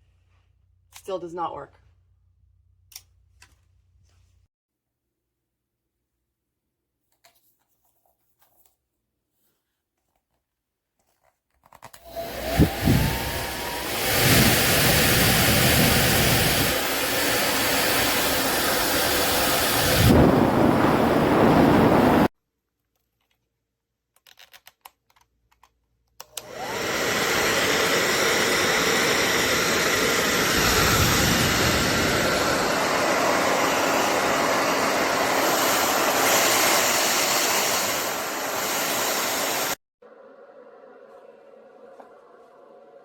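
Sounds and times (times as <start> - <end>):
hair dryer blowing: 12.0 - 22.3, 26.3 - 39.8
hair dryer clicks: 26.2 - 30.4.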